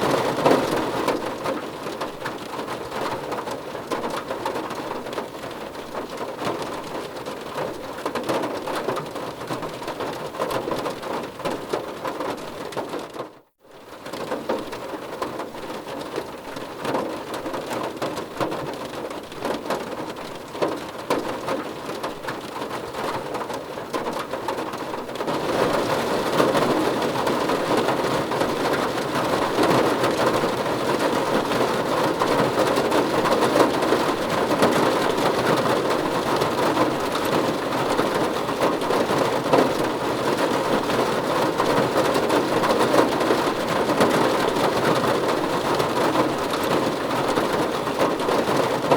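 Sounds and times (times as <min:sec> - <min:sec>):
rain on a car roof: 0:00.0 - 0:48.9.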